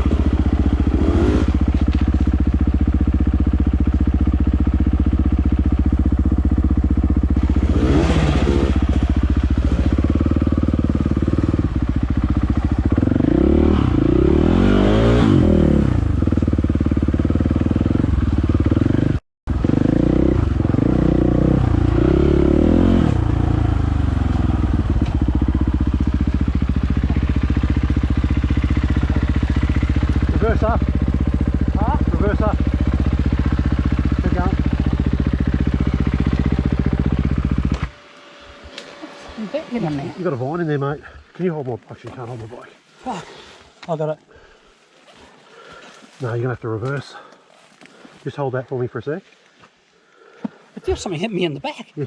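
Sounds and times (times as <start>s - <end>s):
dirt bike engine revving: 0.0s - 41.2s.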